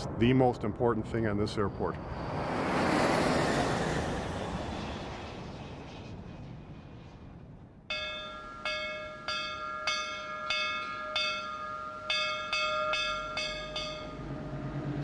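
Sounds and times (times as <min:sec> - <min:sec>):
metal bell ringing: 0:07.9 - 0:14.3.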